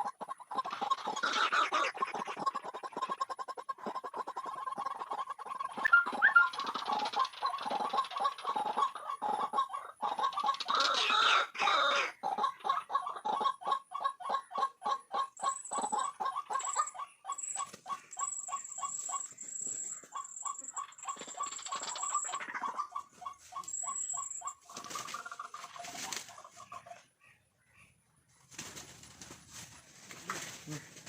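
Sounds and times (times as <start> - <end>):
waterhen calling: 5.2 - 27.1
rustling or flapping: 28.5 - 31.0.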